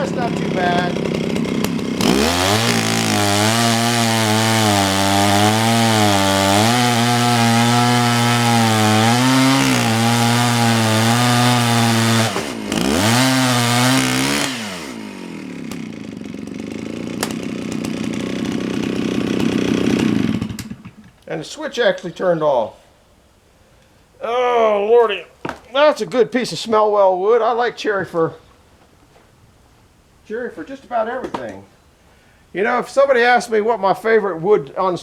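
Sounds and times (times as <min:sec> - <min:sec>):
chainsaw cutting log: 0:00.0 - 0:21.3.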